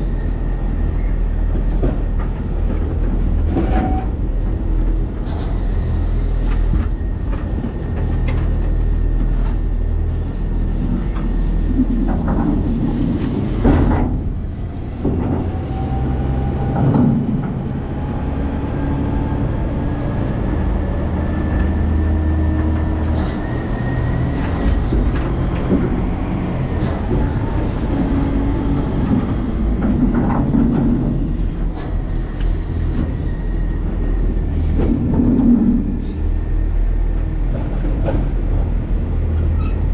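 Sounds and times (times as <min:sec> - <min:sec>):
truck engine drone: 0:04.1 - 0:39.6
clanks and rattles: 0:10.7 - 0:16.1, 0:22.6 - 0:33.3.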